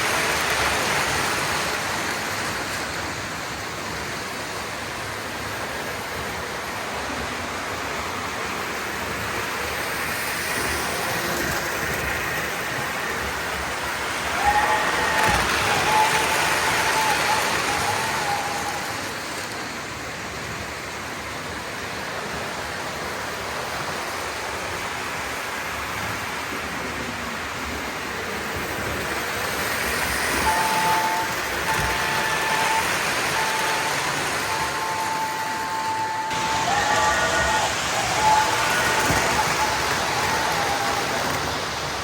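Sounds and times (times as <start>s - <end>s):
model train wheels rumbling: 0.0s - 42.0s
train horn blasts: 30.0s - 41.5s.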